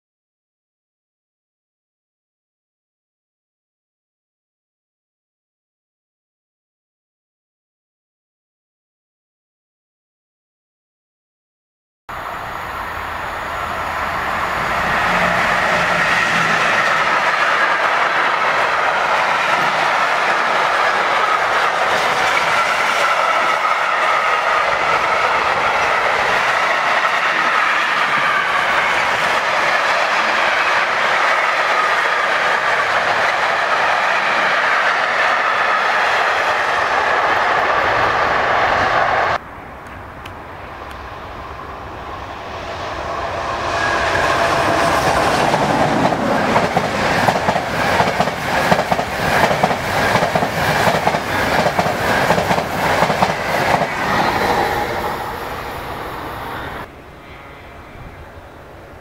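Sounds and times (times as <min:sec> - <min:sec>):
freight train wheels rumbling: 0:12.1 - 0:59.0
rail noise: 0:12.1 - 0:59.0.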